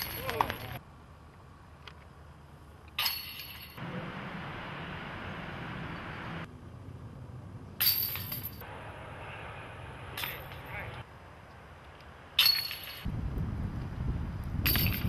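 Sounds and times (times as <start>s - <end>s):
discs striking metal chains: 0.0s - 0.8s, 3.0s - 3.8s, 7.8s - 8.6s, 10.2s - 10.8s, 12.4s - 13.1s, 14.6s - 15.0s.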